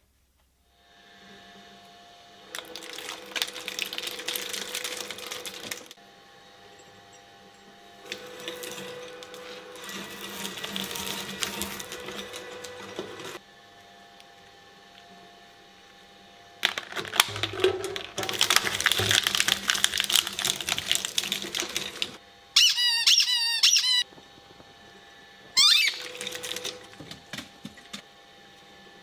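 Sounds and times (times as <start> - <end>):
shredder motor humming: 0.7 - 22.5, 24.1 - 29.0
material crackling and crunching: 2.5 - 6.0, 8.0 - 13.4, 16.6 - 22.2, 25.8 - 28.0.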